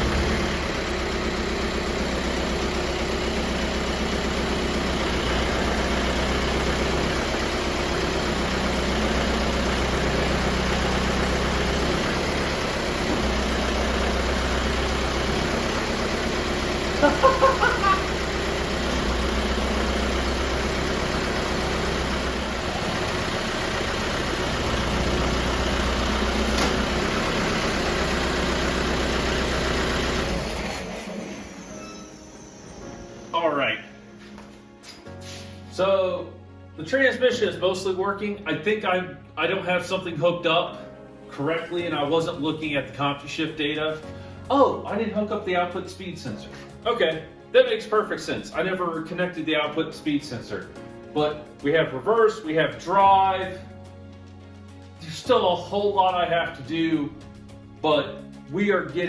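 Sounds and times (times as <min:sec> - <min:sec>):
diesel engine idling: 0:00.0 - 0:33.5
high chirps: 0:31.4 - 0:33.5.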